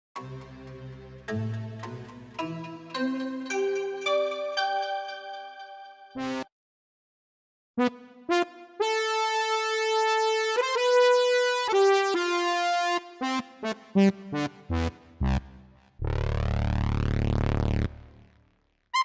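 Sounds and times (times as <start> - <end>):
synthesizer notes: 0.2 - 6.5
buzzy bass synth tone: 14.4 - 18.3.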